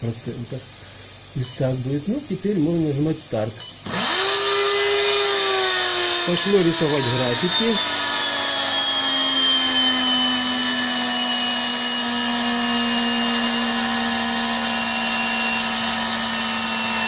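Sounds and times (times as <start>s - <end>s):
electric motor whining: 3.7s - 17.0s.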